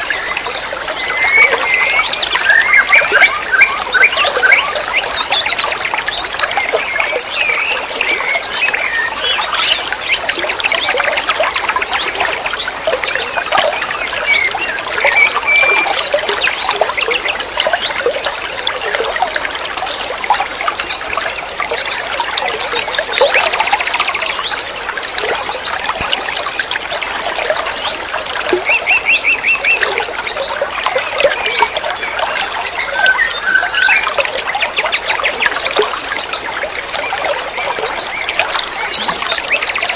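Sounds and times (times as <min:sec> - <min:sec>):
songbird singing: 0:00.0 - 0:18.3, 0:27.4 - 0:39.9.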